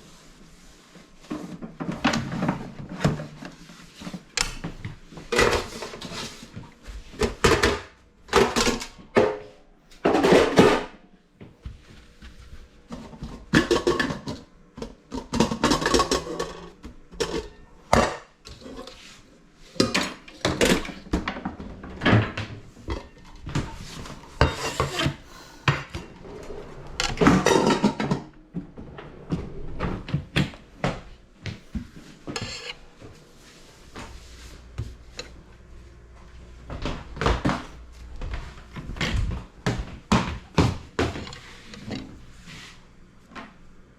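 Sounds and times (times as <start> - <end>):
pots and dishes clattering: 7.2 - 11.0, 13.0 - 19.0, 19.7 - 26.2, 27.0 - 28.4.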